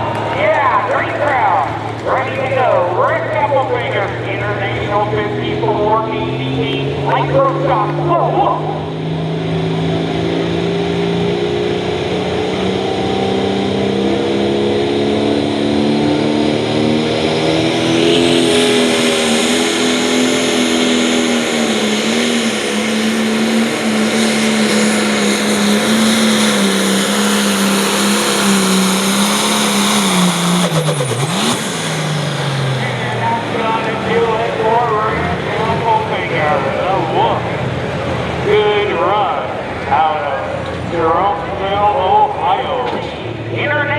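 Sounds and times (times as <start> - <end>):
diesel tractor engine at full throttle: 0.0 - 43.9
high turbo whine: 0.0 - 43.9.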